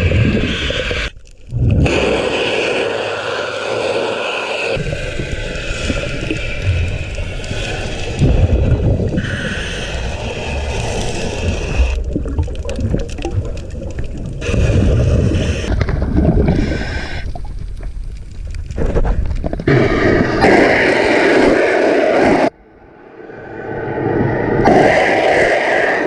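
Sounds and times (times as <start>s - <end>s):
gurgling water and bubbles: 0.0s - 2.9s, 4.7s - 22.6s
underwater low rumble: 4.8s - 25.6s.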